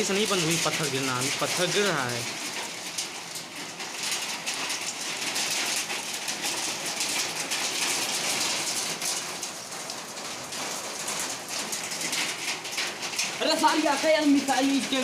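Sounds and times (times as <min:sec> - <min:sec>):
heavy rain with hail clattering: 0:00.0 - 0:15.0.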